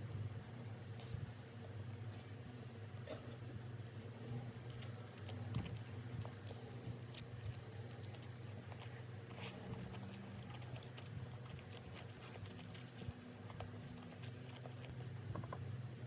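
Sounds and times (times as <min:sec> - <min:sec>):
person chewing food: 0:04.6 - 0:14.9.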